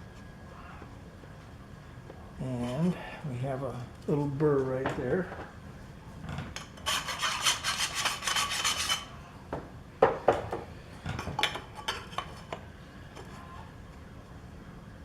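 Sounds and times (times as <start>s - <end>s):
file scraping metal: 6.6s - 9.2s.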